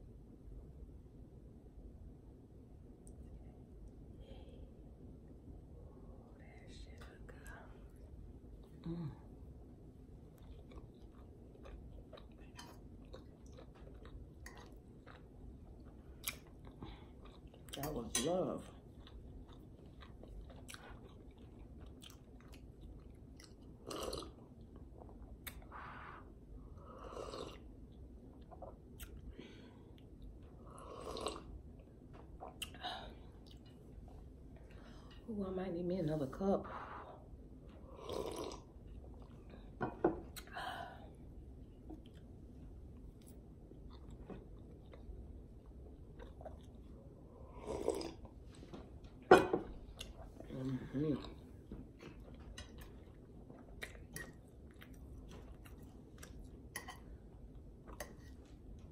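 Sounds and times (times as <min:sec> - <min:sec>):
chewing with wet mouth clicks: 0:10.2 - 0:25.7, 0:43.2 - 0:47.0, 0:51.2 - 0:57.1.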